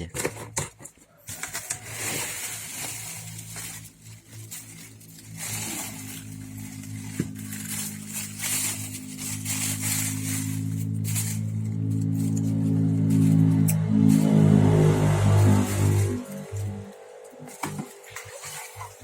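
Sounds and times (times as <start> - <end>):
packaging rustling: 1.1 - 14.4
background music with low notes: 4.5 - 17.7.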